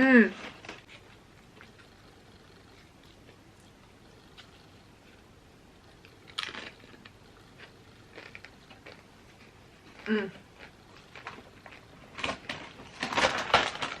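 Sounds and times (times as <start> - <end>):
chewing crunches: 5.9 - 12.8
crisp chip crunching: 6.0 - 14.0.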